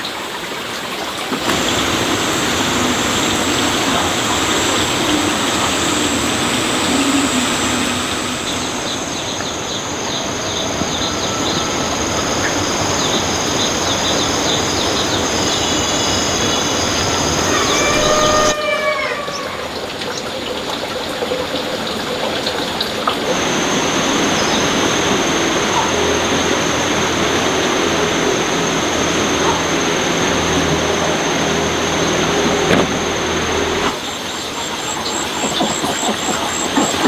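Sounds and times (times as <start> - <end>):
water rushing: 0.0 - 37.0
gliding calls: 1.4 - 20.1.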